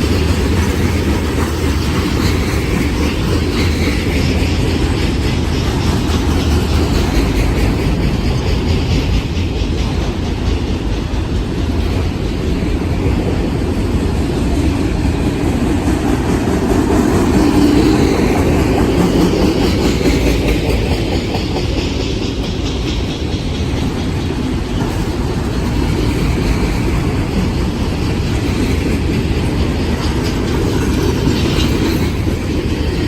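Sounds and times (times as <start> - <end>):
freight train wheels rumbling on rails: 0.0 - 33.0.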